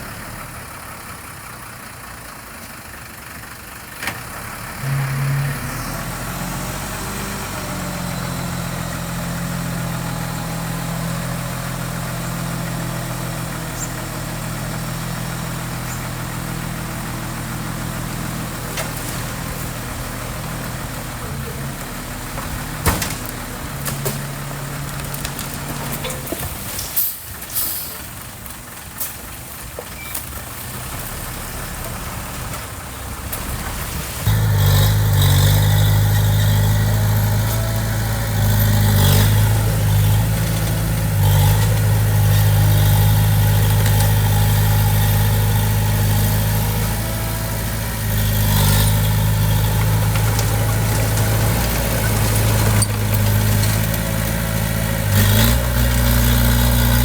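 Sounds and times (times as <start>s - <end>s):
diesel engine running: 0.0s - 57.0s
clattering noise: 22.3s - 28.0s, 48.6s - 57.0s.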